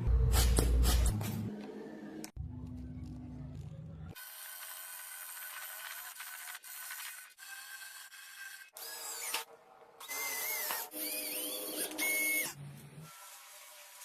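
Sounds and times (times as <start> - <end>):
small power tool whining: 4.2 - 14.0.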